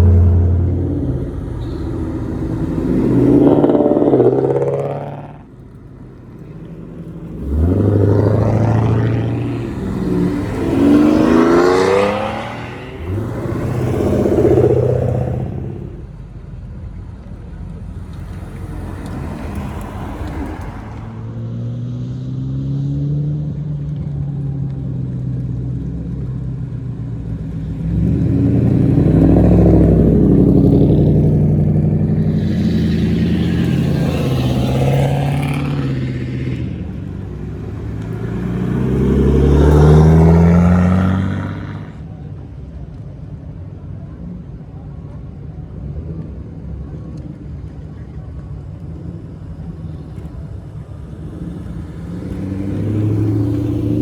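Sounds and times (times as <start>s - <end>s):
low steady engine rumble: 0.0s - 21.6s, 23.5s - 54.0s
cars with loud exhausts passing: 0.0s - 54.0s.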